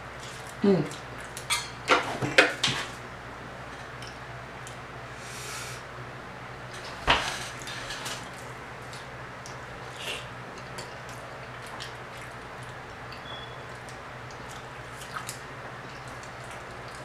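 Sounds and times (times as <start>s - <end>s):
person chewing and lip smacking: 8.8s - 17.0s.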